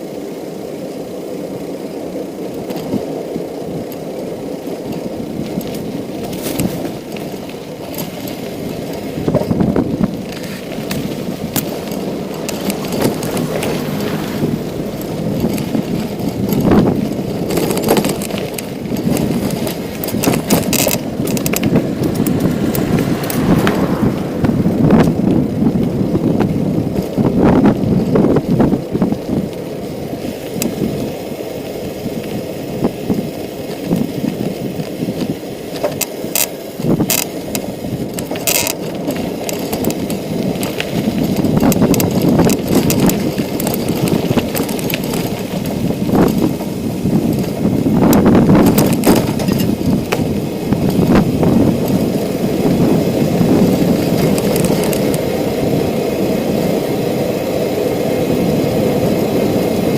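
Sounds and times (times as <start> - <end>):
bicycle clicks and rattles: 0.0 - 59.9
bicycle tyres rolling rumble: 0.0 - 59.9.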